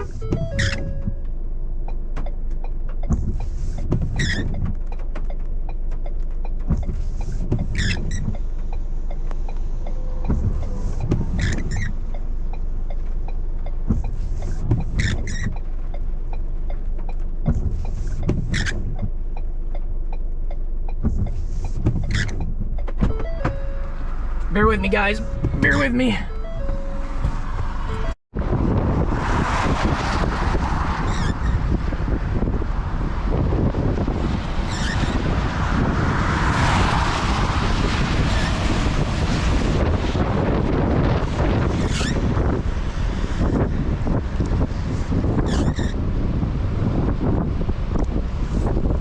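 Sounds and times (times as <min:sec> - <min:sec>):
short high squeak: 0:00.0 - 0:01.2, 0:04.2 - 0:04.6, 0:07.8 - 0:08.3, 0:09.9 - 0:12.0
low rumble of engine and road: 0:00.0 - 0:49.0.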